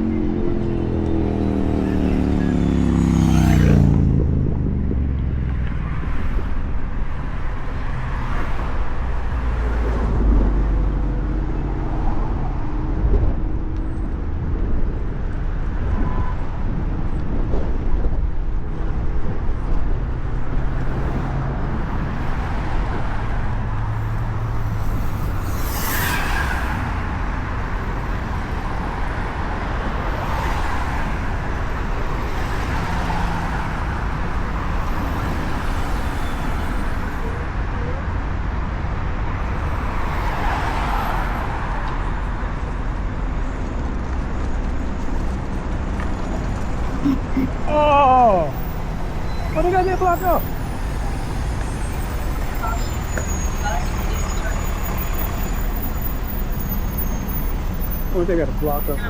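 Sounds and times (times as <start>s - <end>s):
traffic rumble: 0.0s - 59.0s
vehicles passing: 0.0s - 59.0s.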